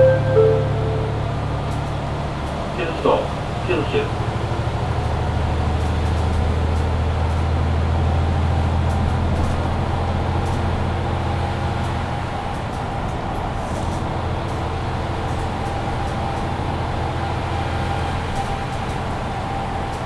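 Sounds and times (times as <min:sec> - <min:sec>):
bus diesel engine droning: 0:00.0 - 0:11.8.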